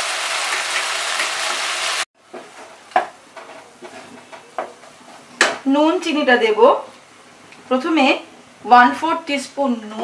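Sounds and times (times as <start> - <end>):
spices sizzling in hot oil: 0.0 - 2.1
spatula knocking and scraping pan: 2.3 - 5.6.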